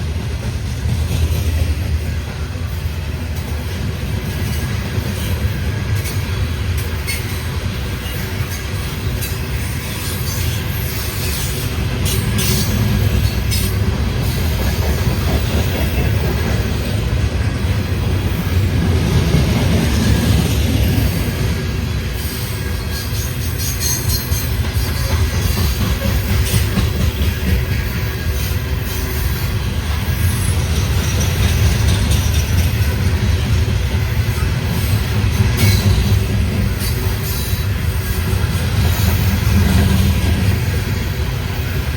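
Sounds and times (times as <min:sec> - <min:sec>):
train wheels rumbling on rails: 0:00.0 - 0:41.9.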